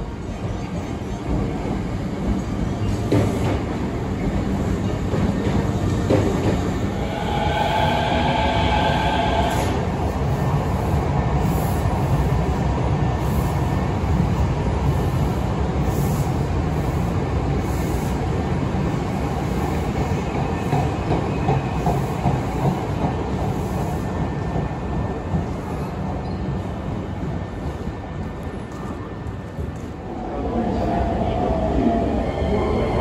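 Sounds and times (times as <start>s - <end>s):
train rumbling past: 0.0s - 33.0s
train wheels clacking: 19.8s - 26.4s.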